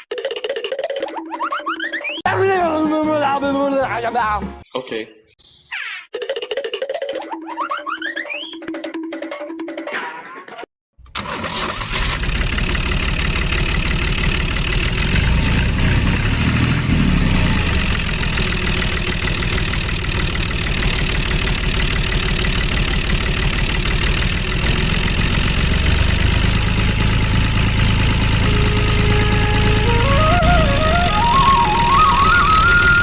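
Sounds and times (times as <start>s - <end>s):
motor running with chugging pulse: 11.9s - 33.0s.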